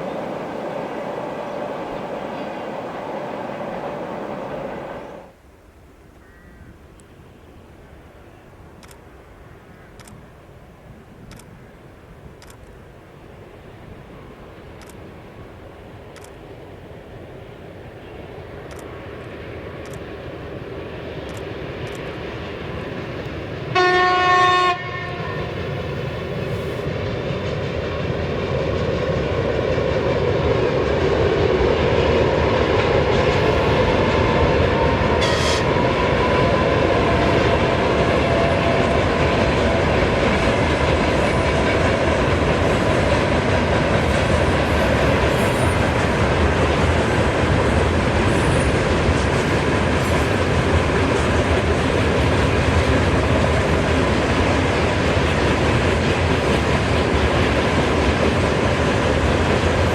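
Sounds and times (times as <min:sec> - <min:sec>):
freight train passing: 0:00.0 - 0:05.7, 0:07.0 - 0:59.9
train horn blast: 0:23.7 - 0:25.6, 0:34.8 - 0:37.6.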